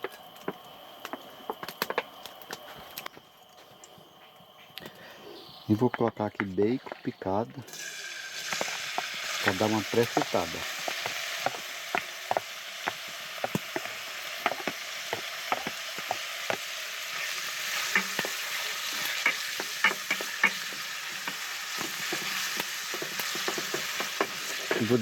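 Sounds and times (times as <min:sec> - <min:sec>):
bacon sizzling in oil: 0:00.0 - 0:03.0, 0:05.8 - 0:25.0
oil popping and clicking: 0:05.8 - 0:25.0.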